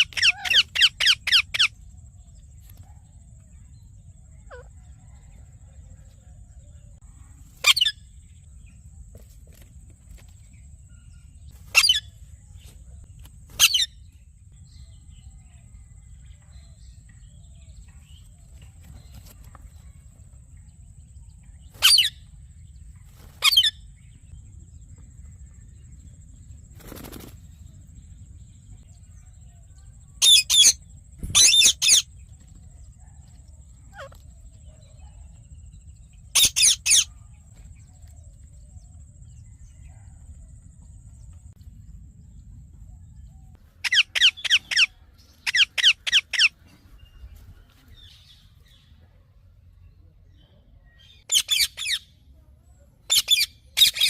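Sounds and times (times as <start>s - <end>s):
parakeet screeching: 0.0s - 1.7s, 43.8s - 44.9s
low background hum: 0.0s - 51.3s.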